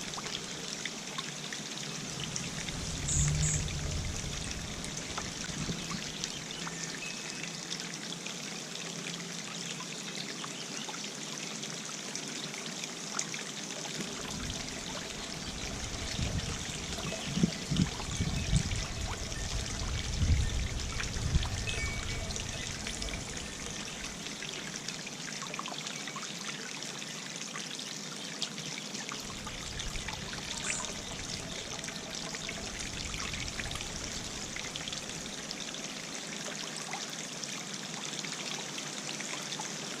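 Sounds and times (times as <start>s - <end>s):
fountain water trickling and splashing: 0.0s - 40.0s
wind rumbling on microphone: 2.0s - 6.2s, 14.1s - 24.2s, 29.3s - 35.4s.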